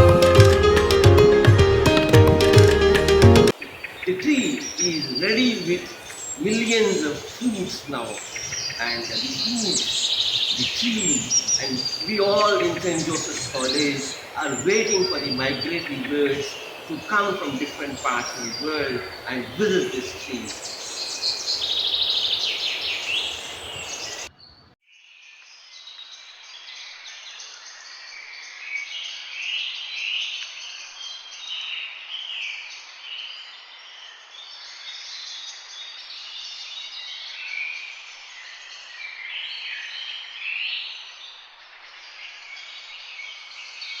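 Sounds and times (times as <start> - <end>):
flock of birds chirping: 3.5 - 24.7.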